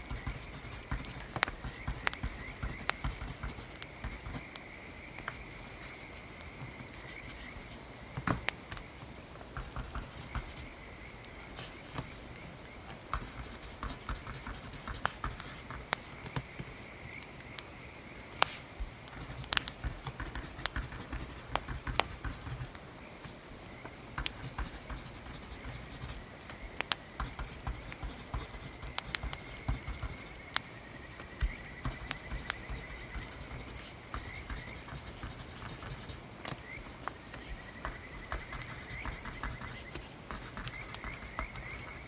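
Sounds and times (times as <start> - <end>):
writing on paper: 0.0 - 4.6, 5.2 - 8.8, 9.5 - 10.8, 11.5 - 16.7, 18.4 - 23.4, 24.2 - 42.0
wood fire crackling: 18.3 - 35.7.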